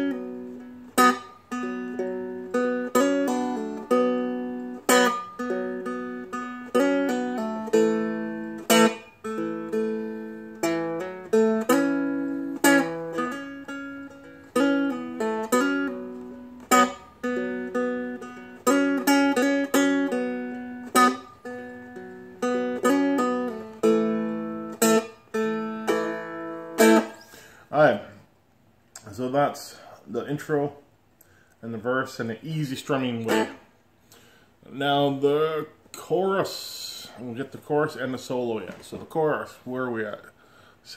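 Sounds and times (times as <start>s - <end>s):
strummed dulcimer melody: 0.0s - 27.2s.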